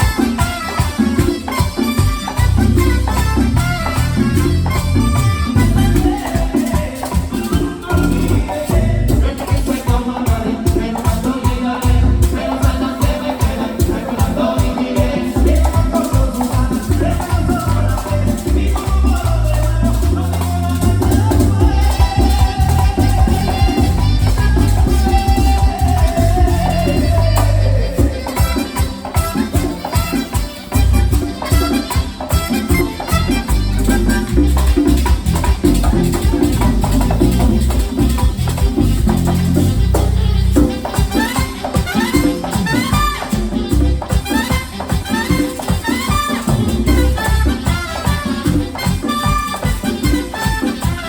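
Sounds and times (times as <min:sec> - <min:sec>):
bass guitar: 0:00.0 - 0:51.0
merengue band playing: 0:00.0 - 0:51.0
guira scraping: 0:17.3 - 0:30.0
drums: 0:20.8 - 0:51.0.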